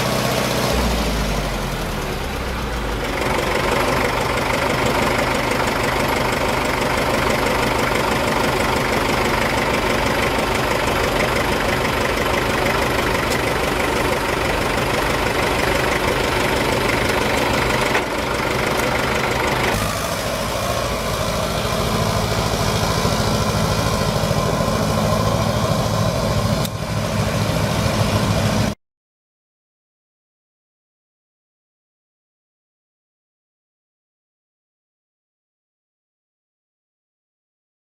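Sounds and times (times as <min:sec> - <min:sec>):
tractor engine idling: 0:00.0 - 0:28.8.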